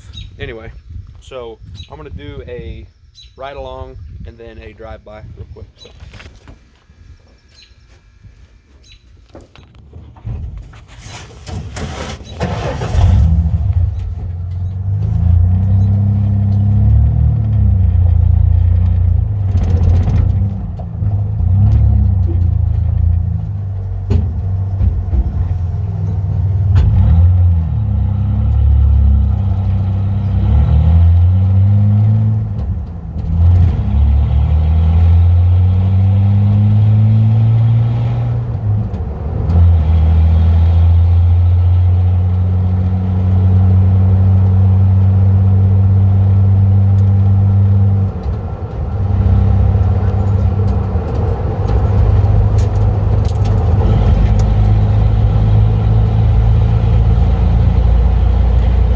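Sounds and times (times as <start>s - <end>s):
loud truck exhaust: 12.2s - 48.0s, 48.8s - 58.9s.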